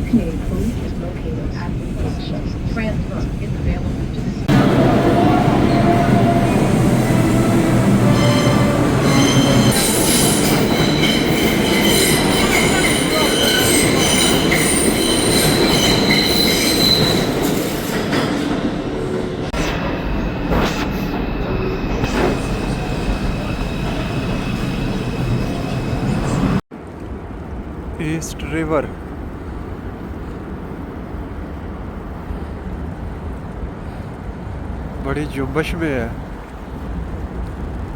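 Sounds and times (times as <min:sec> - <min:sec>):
subway train rumbling: 0:00.0 - 0:37.9
wheels squealing: 0:04.5 - 0:18.5.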